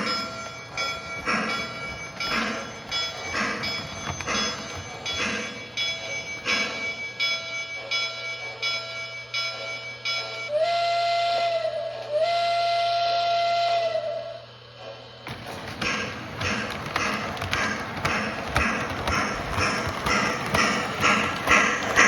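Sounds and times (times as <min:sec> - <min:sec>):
model train clicking on track: 0:00.0 - 0:08.1, 0:15.3 - 0:22.0
model train electronic horn: 0:10.5 - 0:14.5.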